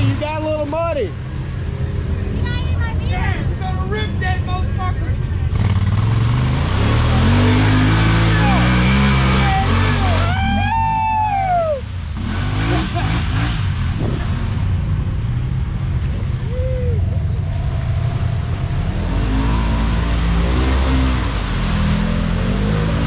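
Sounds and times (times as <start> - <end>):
utility vehicle engine running: 0.0 - 23.0
person shouting: 8.3 - 11.9.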